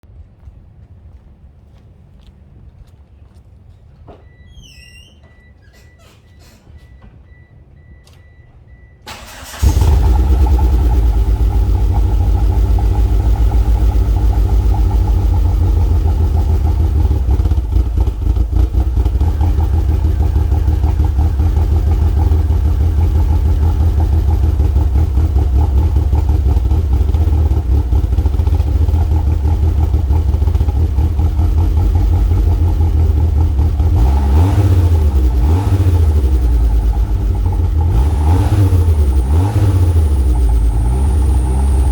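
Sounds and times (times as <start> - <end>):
car engine cranking: 9.0 - 41.9
car engine idling: 9.1 - 41.9
engine revving: 9.1 - 41.9.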